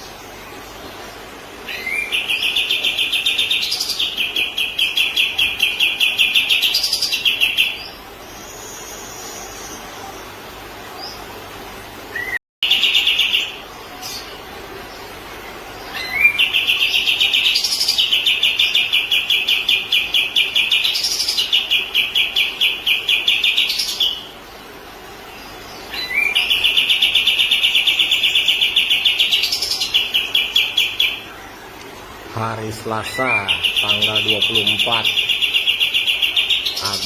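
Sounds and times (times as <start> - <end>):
bird singing fast trills: 1.6 - 9.8, 15.8 - 24.4, 25.7 - 31.4, 32.3 - 37.0.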